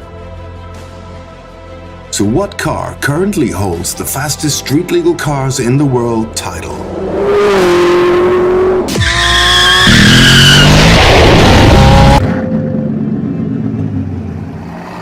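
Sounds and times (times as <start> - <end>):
high-revving sports car engine: 6.8 - 15.0.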